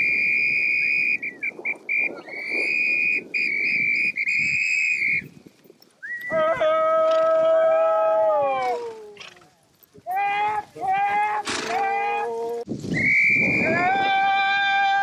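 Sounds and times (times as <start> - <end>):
dog whistle blasts: 0.0 - 5.2, 12.9 - 13.6.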